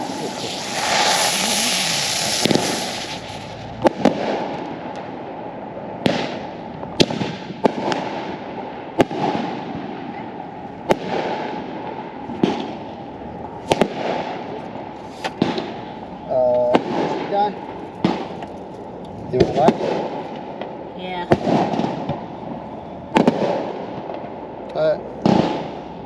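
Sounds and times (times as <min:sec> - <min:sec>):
firework hissing rush: 0:00.0 - 0:04.6
firework bangs: 0:00.0 - 0:18.5, 0:19.3 - 0:26.0
fireworks crackling: 0:00.0 - 0:26.0.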